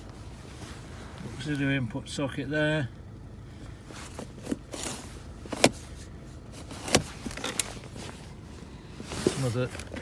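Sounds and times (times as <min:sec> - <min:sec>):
clicks and knocks in car: 0:05.4 - 0:05.9.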